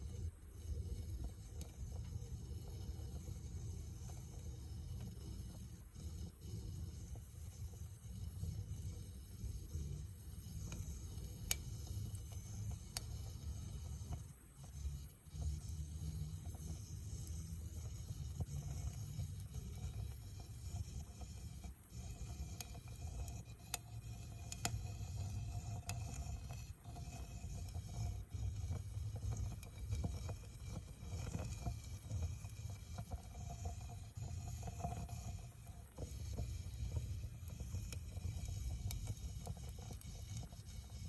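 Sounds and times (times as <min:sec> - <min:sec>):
campfire crackling and popping: 0:37.4 - 0:40.0.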